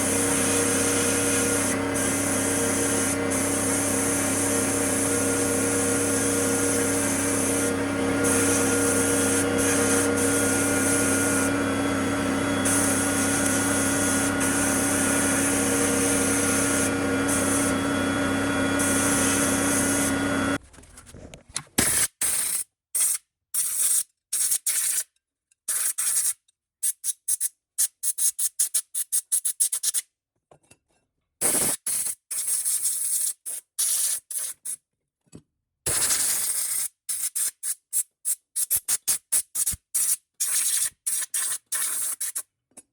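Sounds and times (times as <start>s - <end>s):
power tool running: 0.0s - 20.6s.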